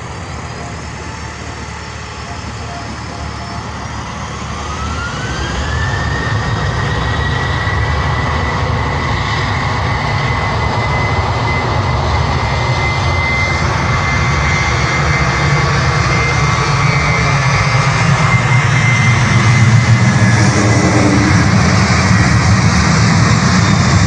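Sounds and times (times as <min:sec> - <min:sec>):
low engine rumble: 0:00.0 - 0:09.0, 0:14.5 - 0:24.0
jet engines whining: 0:00.0 - 0:24.0.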